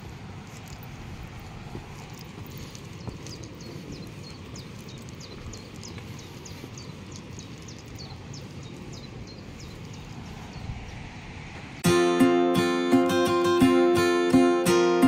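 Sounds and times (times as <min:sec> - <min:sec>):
low outdoor rumble: 0:00.0 - 0:11.9.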